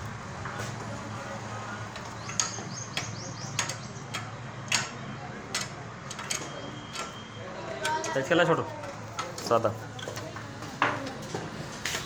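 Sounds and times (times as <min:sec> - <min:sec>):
hand tools clicking on metal: 0:01.9 - 0:07.2.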